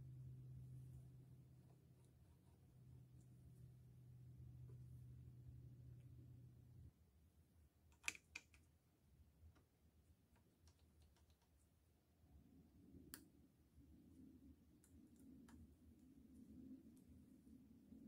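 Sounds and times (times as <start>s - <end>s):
faint clicks and taps: 7.9s - 8.8s, 9.4s - 11.8s, 14.7s - 17.3s.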